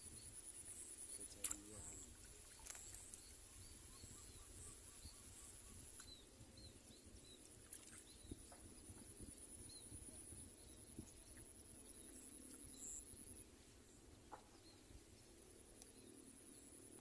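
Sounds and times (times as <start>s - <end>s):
small chirps: 1.0s - 6.2s.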